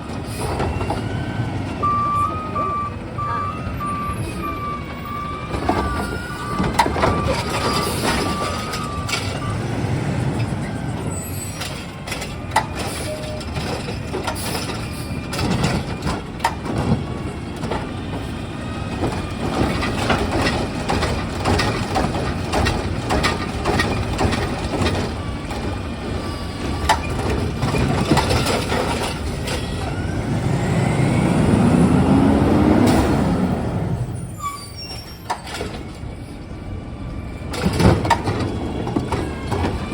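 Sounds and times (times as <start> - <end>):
truck reversing beeper: 0.0 - 19.0, 19.6 - 39.9
diesel engine rumble: 0.0 - 39.9
clattering and knocking: 18.9 - 25.8, 26.6 - 29.7, 37.5 - 39.9.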